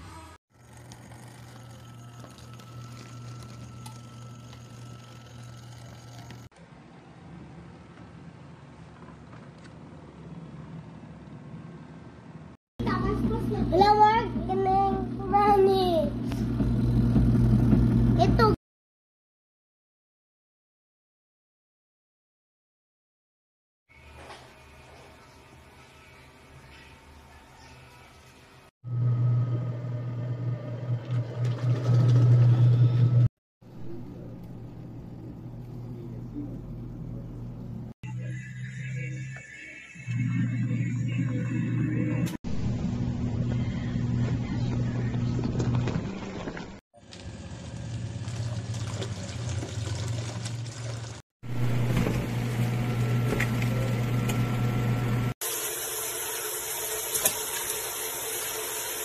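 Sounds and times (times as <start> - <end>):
washing machine motor humming: 0.1 - 6.5, 12.8 - 18.5, 28.9 - 38.0, 40.2 - 59.0.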